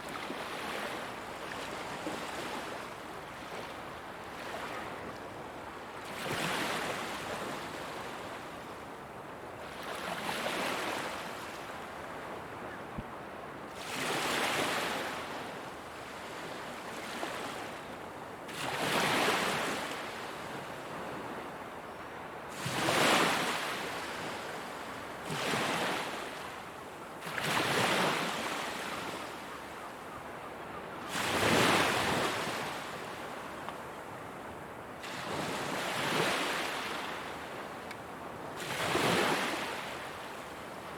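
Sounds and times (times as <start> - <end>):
ocean waves breaking on shore: 0.0 - 5.2, 13.2 - 21.8, 22.5 - 40.9.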